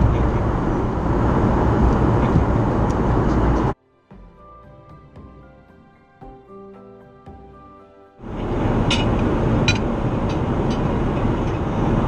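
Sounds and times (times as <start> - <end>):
airliner engine roar: 0.0 - 3.8, 8.2 - 12.0
soft background music: 3.7 - 9.7.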